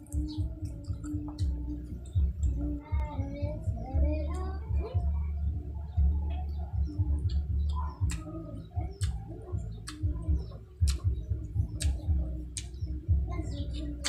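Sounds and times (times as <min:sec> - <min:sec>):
muffled chewing: 0:00.0 - 0:05.1, 0:05.9 - 0:14.0
wet mouth smacks: 0:07.2 - 0:08.3, 0:09.0 - 0:09.2, 0:09.8 - 0:10.1, 0:10.8 - 0:11.1, 0:11.8 - 0:12.8.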